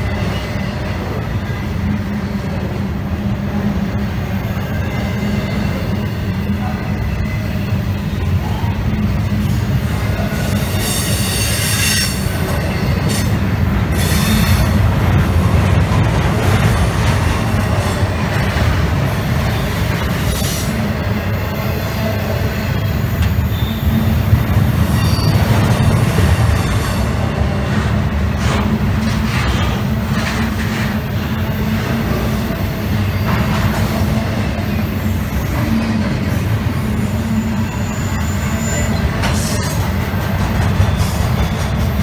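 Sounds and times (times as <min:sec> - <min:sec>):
train wheels rumbling on track: 0:00.0 - 0:42.0
high-pitched wheel squeals: 0:10.7 - 0:13.3, 0:24.9 - 0:25.5, 0:37.2 - 0:39.6.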